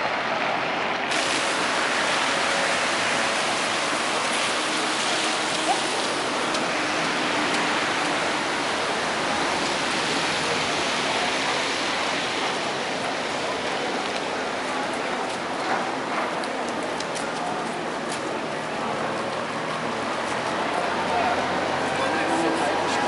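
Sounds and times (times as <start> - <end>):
rain on wet paving stones: 1.0 - 23.0.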